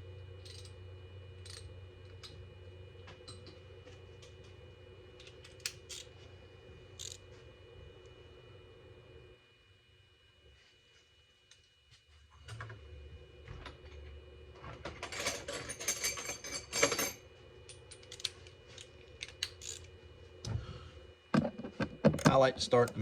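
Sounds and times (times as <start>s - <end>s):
hand ratchet clicking: 7.0s - 7.2s.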